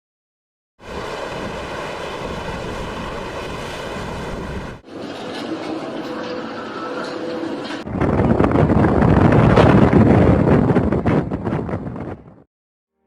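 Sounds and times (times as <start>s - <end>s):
heavy wind: 0.8s - 5.6s, 7.0s - 12.5s
rough waves: 0.8s - 10.7s.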